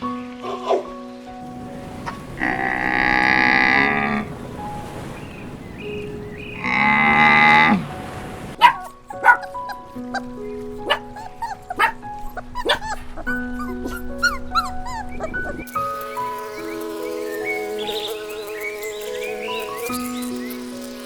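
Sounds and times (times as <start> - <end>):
light instrumental music: 0.0 - 21.0
drawn-out animal call: 1.5 - 4.6, 5.4 - 10.2.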